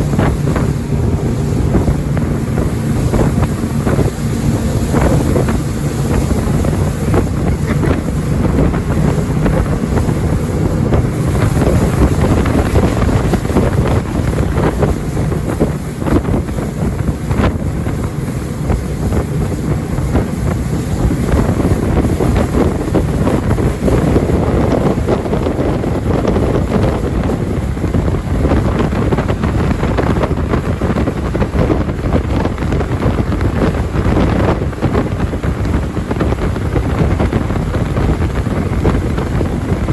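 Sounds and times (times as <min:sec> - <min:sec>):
jet boat engine: 0:00.0 - 0:39.9
water rushing: 0:00.0 - 0:39.9
wind noise on microphone: 0:00.0 - 0:39.9.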